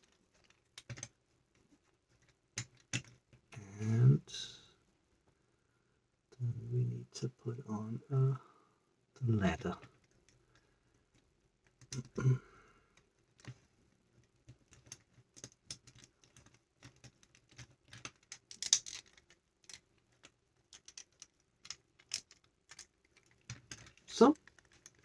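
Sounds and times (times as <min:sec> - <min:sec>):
plastic bricks clicking: 0:00.0 - 0:01.2, 0:02.1 - 0:03.4, 0:09.8 - 0:12.2, 0:14.5 - 0:25.0.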